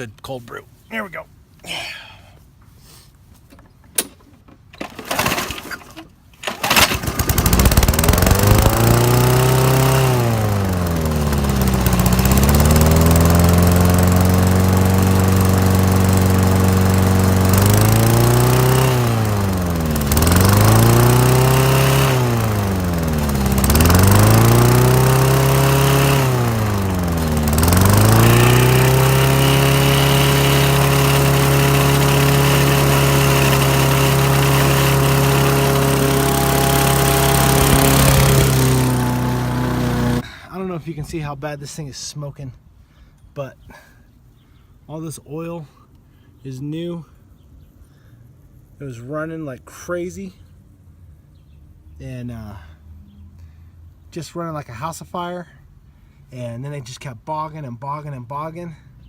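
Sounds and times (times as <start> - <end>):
lawnmower engine running: 4.0 - 40.2.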